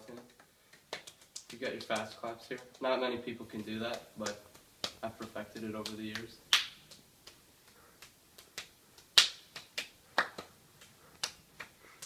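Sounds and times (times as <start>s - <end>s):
hand claps: 0.0s - 12.0s.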